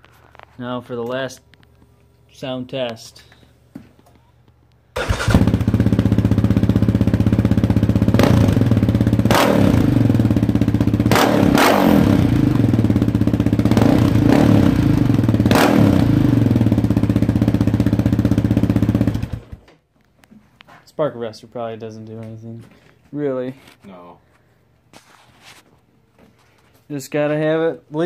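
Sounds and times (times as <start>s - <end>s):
quad bike engine idling: 5.0s - 11.1s, 12.1s - 19.6s.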